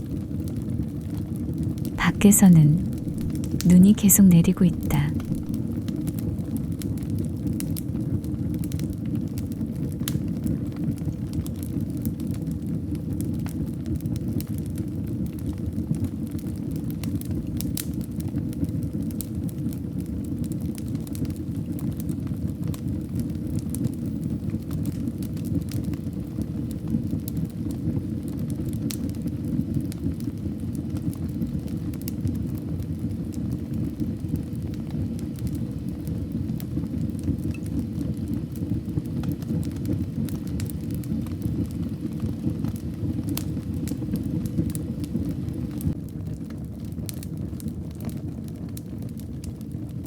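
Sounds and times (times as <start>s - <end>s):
wood fire crackles and pops: 6.8s - 12.4s, 13.3s - 50.0s.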